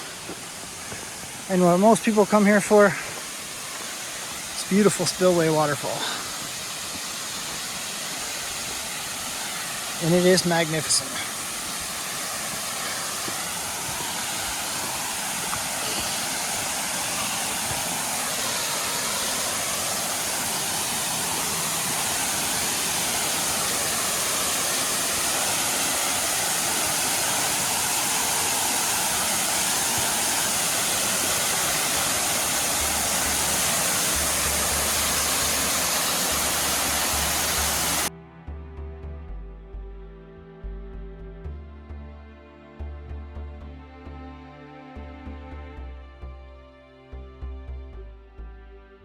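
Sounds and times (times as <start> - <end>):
water rushing over waterfall: 0.0 - 38.1
music: 32.8 - 49.0.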